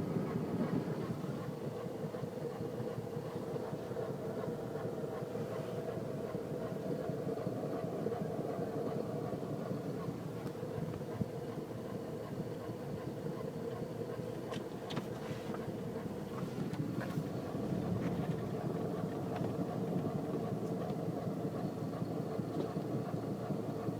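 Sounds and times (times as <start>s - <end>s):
car engine running: 14.2s - 23.7s.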